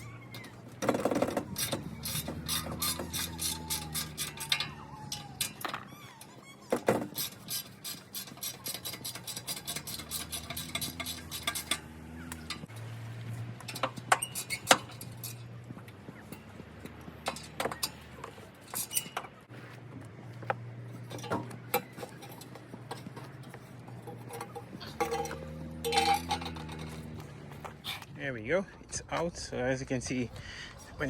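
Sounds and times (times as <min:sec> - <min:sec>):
metal clanks: 0:00.0 - 0:06.0, 0:06.7 - 0:19.5, 0:20.4 - 0:28.1
ratchet wrench clicking: 0:01.5 - 0:05.6.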